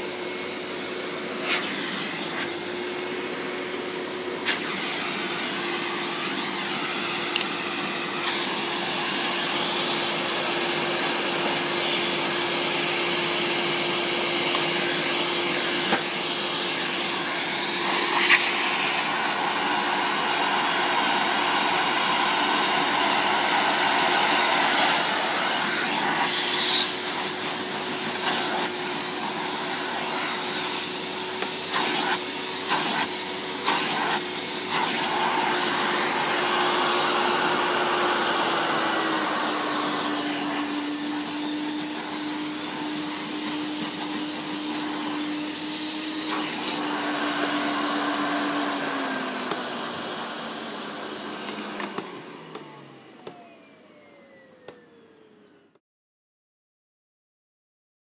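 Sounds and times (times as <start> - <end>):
vacuum cleaner running: 0.0 - 55.8.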